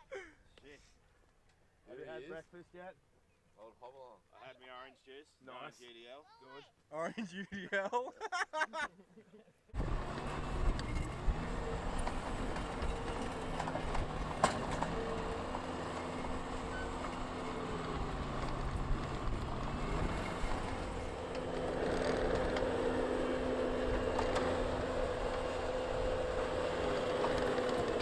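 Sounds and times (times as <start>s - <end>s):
engine running at low revs: 9.8s - 28.0s.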